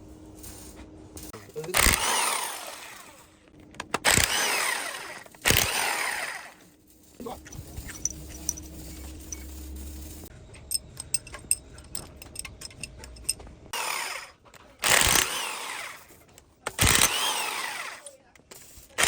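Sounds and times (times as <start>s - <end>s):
power tool running in bursts: 1.8s - 3.3s, 4.1s - 6.6s, 16.8s - 18.1s
low steady hum: 6.8s - 13.7s.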